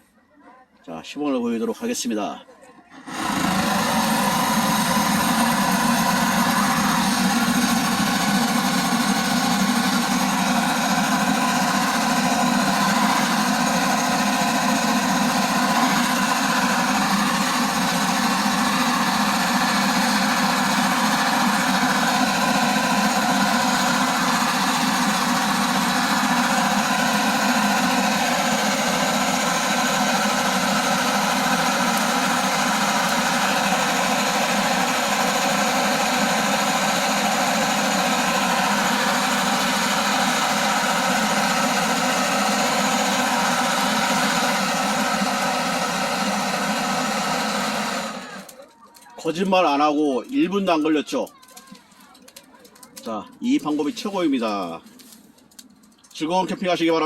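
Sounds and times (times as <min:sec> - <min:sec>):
gas torch burning: 0:03.0 - 0:48.6.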